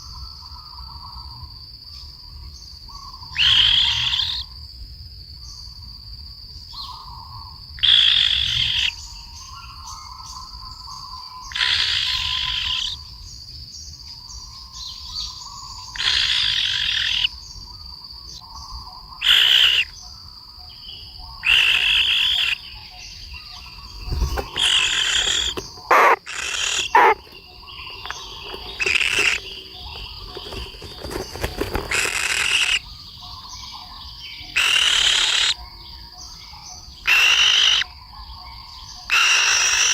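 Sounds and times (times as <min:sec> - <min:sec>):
high insect drone: 0:00.0 - 0:39.9
harsh buzzy bird calls: 0:02.9 - 0:04.5, 0:07.8 - 0:10.4, 0:11.0 - 0:13.1, 0:15.0 - 0:20.2, 0:21.3 - 0:33.8, 0:34.4 - 0:35.6, 0:36.3 - 0:38.0, 0:38.9 - 0:39.9
short sharp bird calls: 0:23.6 - 0:32.9.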